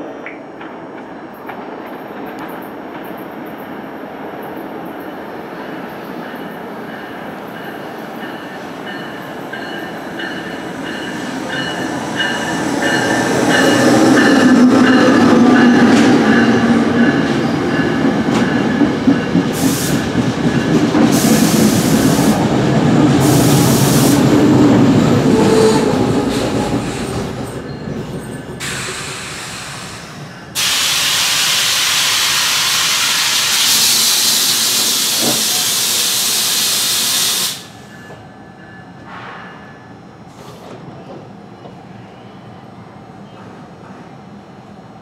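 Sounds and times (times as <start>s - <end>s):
train wheels rumbling: 0.0s - 41.8s
loud hiss of air: 19.5s - 20.2s, 21.1s - 22.5s, 23.2s - 24.3s, 28.6s - 37.9s.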